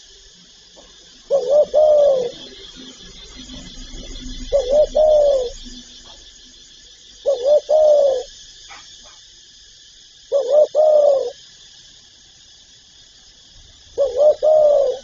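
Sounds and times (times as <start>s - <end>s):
dove cooing: 0.8s - 3.7s, 4.3s - 5.6s, 7.2s - 9.2s, 10.3s - 11.4s, 14.0s - 15.0s.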